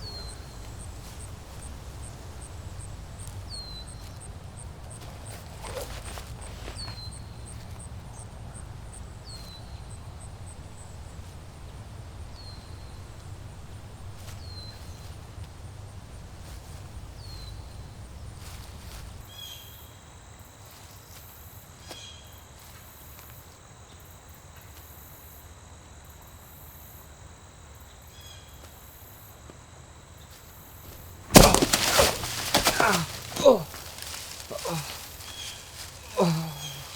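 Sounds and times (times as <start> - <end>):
bird chirping: 0.0 - 8.3.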